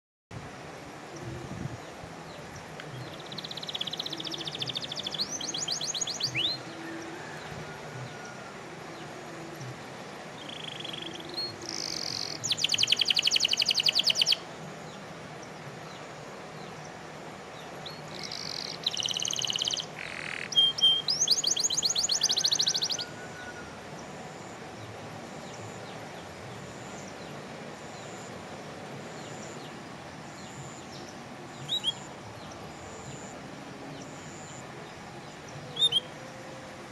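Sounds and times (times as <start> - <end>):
canary singing trills: 3.0 - 7.4, 10.4 - 14.4, 17.8 - 24.1, 30.4 - 33.4, 34.0 - 36.4.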